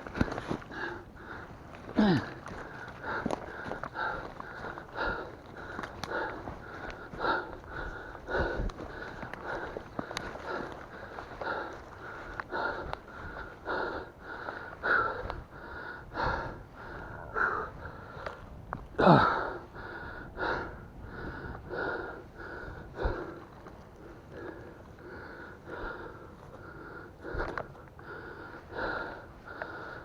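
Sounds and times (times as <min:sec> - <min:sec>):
man breathing hard: 0:00.0 - 0:30.0
man groaning: 0:02.0 - 0:02.4.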